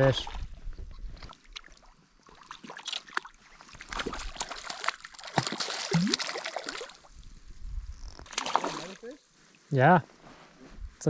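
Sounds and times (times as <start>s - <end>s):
water splashing and trickling: 0.0s - 7.3s, 8.2s - 9.2s
small clicks and drips: 0.2s - 7.1s.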